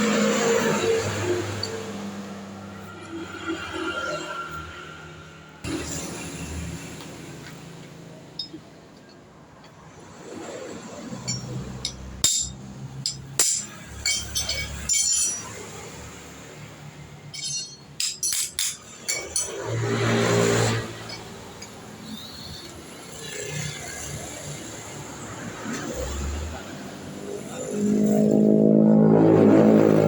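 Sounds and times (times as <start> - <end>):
metal tools clinking and knocking: 8.4 - 9.2, 11.2 - 16.2, 17.1 - 21.8.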